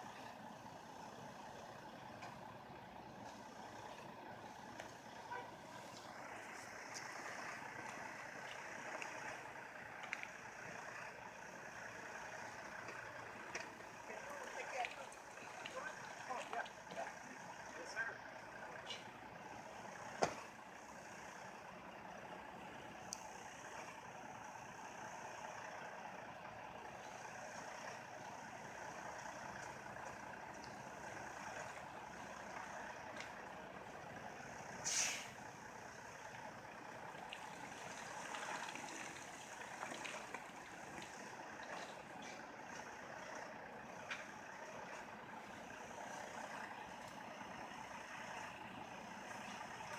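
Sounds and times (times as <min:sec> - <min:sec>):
tires spinning in snow: 0:00.0 - 0:49.9
truck engine running: 0:00.0 - 0:49.9
burst of hiss: 0:34.8 - 0:35.4.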